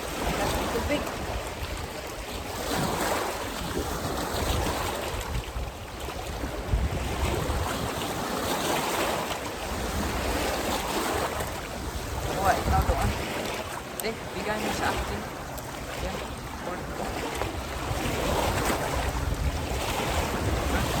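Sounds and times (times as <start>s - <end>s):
lake waves lapping: 0.0s - 21.0s
wind buffeting microphone: 0.0s - 21.0s.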